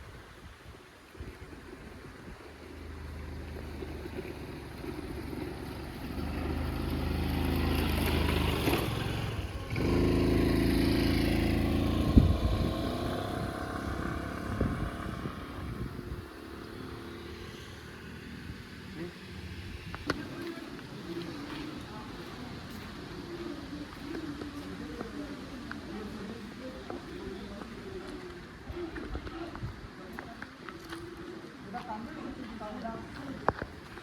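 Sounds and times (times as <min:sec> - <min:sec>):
vehicle engine running: 0:02.8 - 0:25.1.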